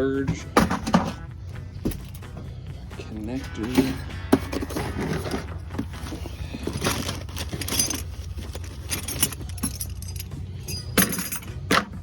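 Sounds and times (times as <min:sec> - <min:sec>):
small metal items jangling: 0:01.8 - 0:02.4, 0:03.4 - 0:11.9.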